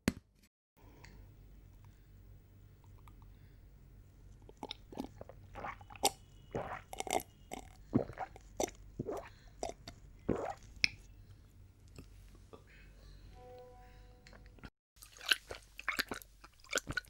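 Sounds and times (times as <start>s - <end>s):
person gulping and swallowing: 4.4s - 11.0s, 15.1s - 17.0s
low hum: 9.9s - 14.7s.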